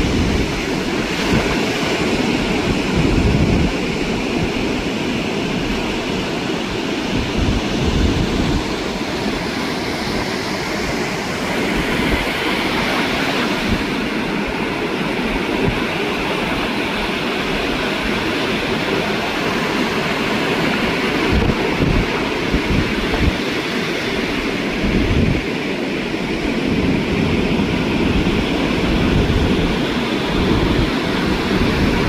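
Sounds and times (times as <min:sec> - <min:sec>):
ocean surf breaking: 0:00.0 - 0:32.0
wind buffeting microphone: 0:00.0 - 0:32.0.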